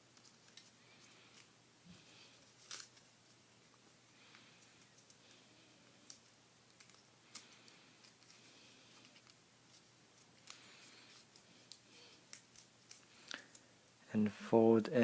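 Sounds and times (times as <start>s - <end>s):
paper being folded and creased: 0.0s - 1.5s, 2.4s - 3.4s.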